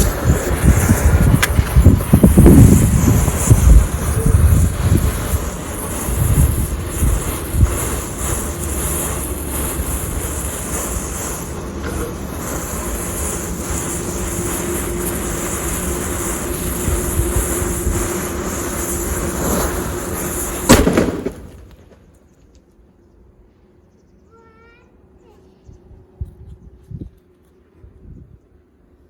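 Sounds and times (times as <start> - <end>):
sharp crack: 0.0 - 3.9, 17.9 - 22.1
firework fountain hissing: 0.0 - 22.4.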